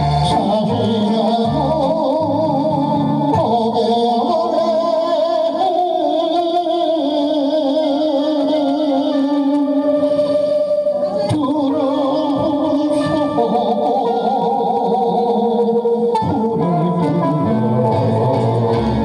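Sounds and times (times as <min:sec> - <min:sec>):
band accompaniment: 0:00.0 - 0:03.8, 0:16.1 - 0:19.0
plucked bass notes: 0:00.0 - 0:04.6, 0:11.2 - 0:19.0
person singing with vibrato: 0:00.0 - 0:19.0.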